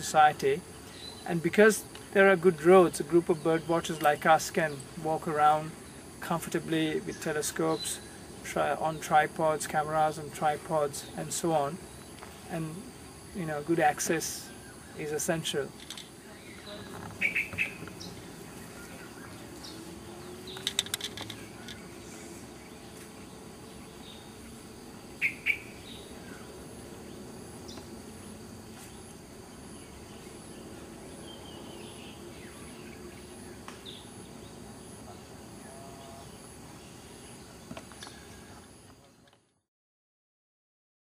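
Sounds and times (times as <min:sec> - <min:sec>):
insect drone: 0:00.0 - 0:39.7
bird chirps: 0:16.2 - 0:23.0, 0:25.2 - 0:26.6.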